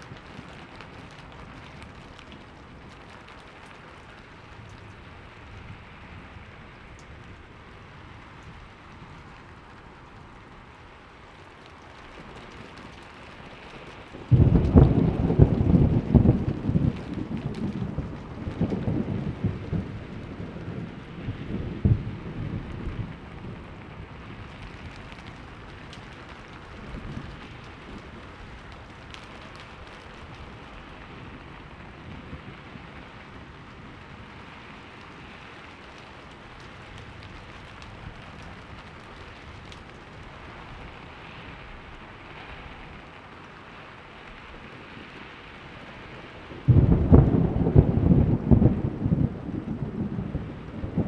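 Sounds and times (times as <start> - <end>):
thunder rumbling: 0.0 - 43.1, 44.0 - 51.0
steady rain: 0.0 - 51.0
loud thunder clap: 14.3 - 23.3, 46.7 - 51.0.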